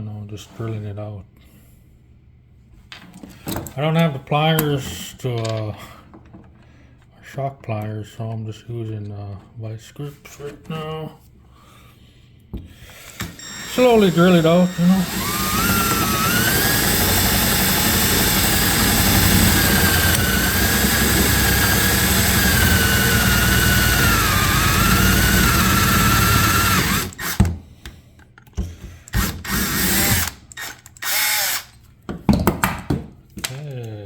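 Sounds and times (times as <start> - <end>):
power drill whining: 13.0 - 27.5, 29.1 - 31.8.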